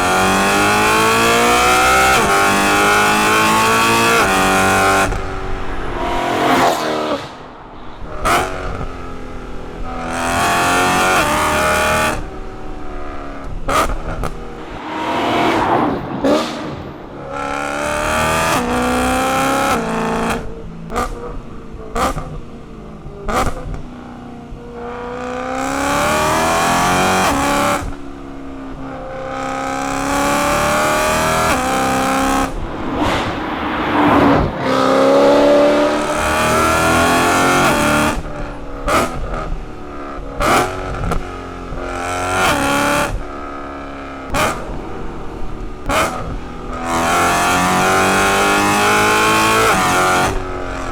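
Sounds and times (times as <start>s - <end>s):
car engine revving: 0.0s - 12.3s, 13.7s - 20.4s, 29.9s - 38.3s.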